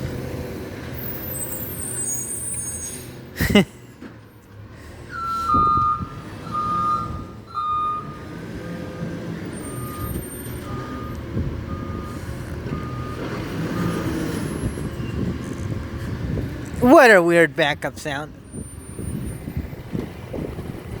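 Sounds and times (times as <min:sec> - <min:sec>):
truck engine running: 0:03.2 - 0:21.0
backup alarm beeping: 0:05.1 - 0:13.2.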